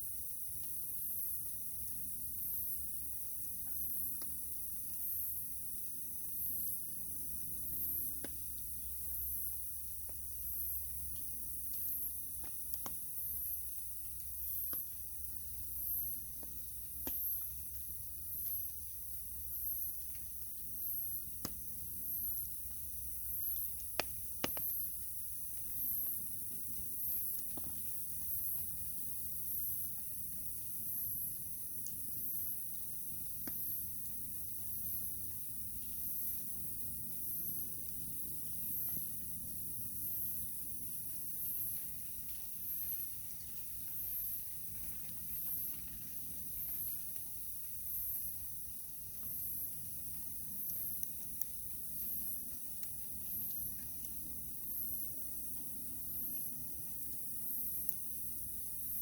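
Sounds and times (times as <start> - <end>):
campfire crackling: 7.6 - 39.8, 40.4 - 59.0
wood fire crackling: 11.0 - 30.1
fire pops: 23.6 - 26.2.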